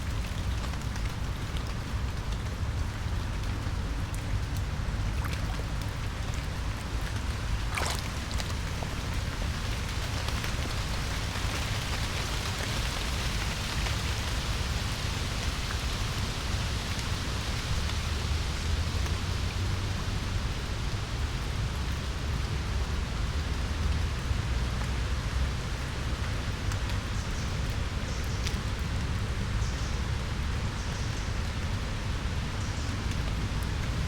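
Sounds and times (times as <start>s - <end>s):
low steady rumble: 0.0s - 12.1s
rain falling on foliage: 0.0s - 34.0s.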